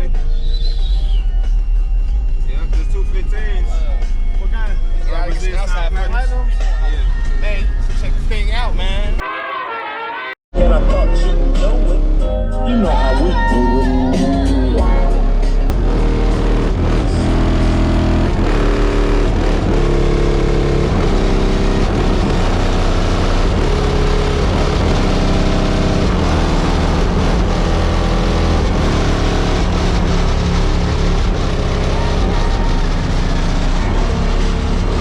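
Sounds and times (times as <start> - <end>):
bass-heavy rap music: 0.0 - 9.2, 10.5 - 35.0
car body buzzing: 15.7 - 35.0.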